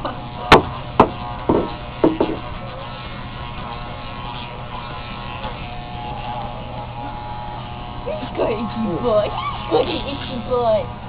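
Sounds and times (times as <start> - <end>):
electric clippers buzzing: 0.0 - 11.0
sharp knocks: 0.5 - 2.5.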